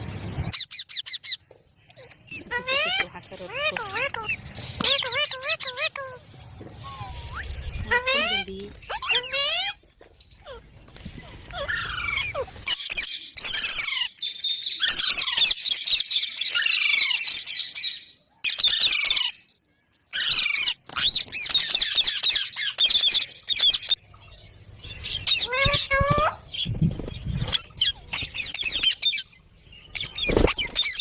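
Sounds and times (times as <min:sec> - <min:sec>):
parakeet chattering and squawking: 0:02.0 - 0:09.8, 0:10.4 - 0:14.1, 0:25.1 - 0:26.7.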